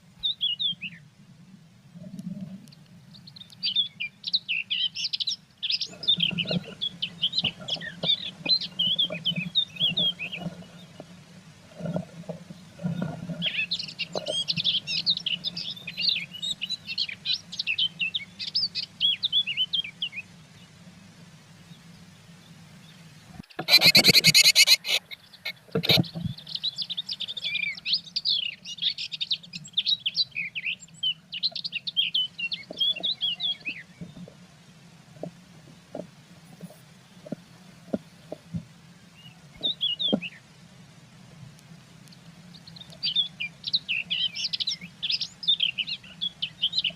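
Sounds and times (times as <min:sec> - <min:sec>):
birds chirping and twittering: 0:00.0 - 0:01.1, 0:02.1 - 0:34.5, 0:35.2 - 0:40.6, 0:42.0 - 0:46.9.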